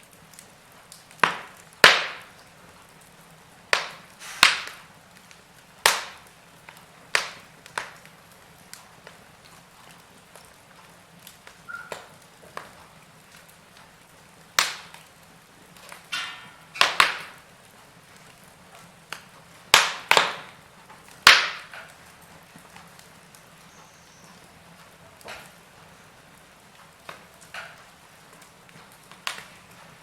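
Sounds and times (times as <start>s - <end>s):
soft steady hiss: 0.0s - 30.0s
wood fire crackling and popping: 0.0s - 30.0s.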